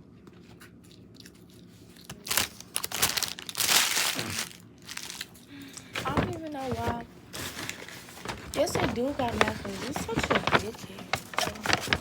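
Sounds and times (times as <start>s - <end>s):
paper packaging crinkling: 1.9s - 5.4s, 6.0s - 12.0s.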